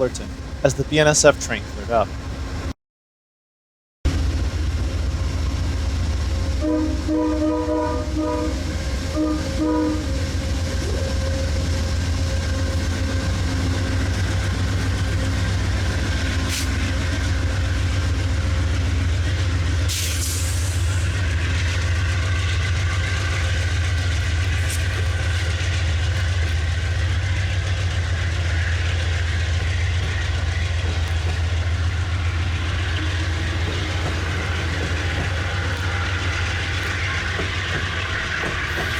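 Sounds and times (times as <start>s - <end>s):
train rumble and rail clatter: 0.0s - 2.8s, 4.1s - 38.9s
train horn blasts: 6.6s - 12.8s.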